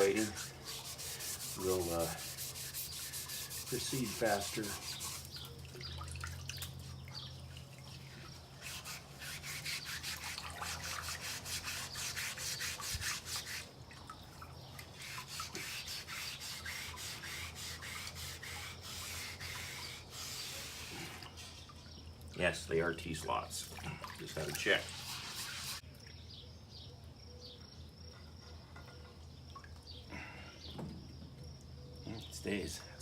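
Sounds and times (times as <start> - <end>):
scouring pad scrubbing rusty metal: 0.0 - 6.0, 8.0 - 13.8, 14.9 - 21.8, 24.3 - 25.8.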